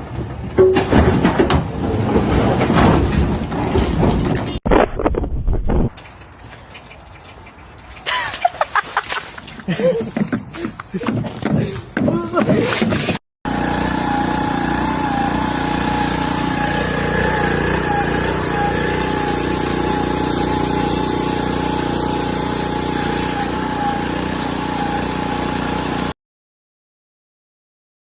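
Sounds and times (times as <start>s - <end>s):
motor whining over low drone: 13.5s - 26.1s.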